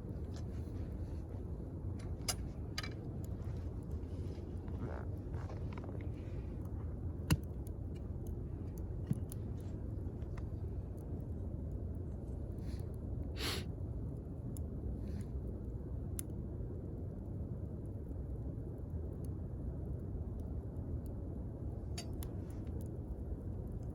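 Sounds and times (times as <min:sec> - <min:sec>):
wood fire crackling and popping: 0:00.0 - 0:13.0, 0:20.2 - 0:23.9.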